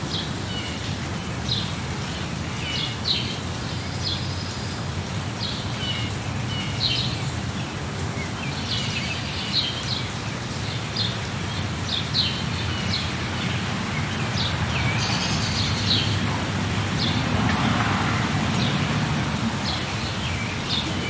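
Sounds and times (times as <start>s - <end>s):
rainfall hiss: 0.0s - 21.0s
small birds chirping: 19.4s - 21.0s.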